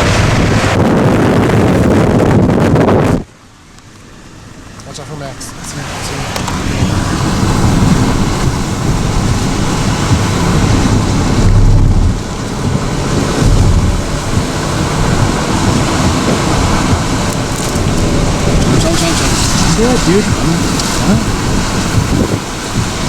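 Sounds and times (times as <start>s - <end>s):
gusty wind buffeting microphone: 0.0s - 23.0s.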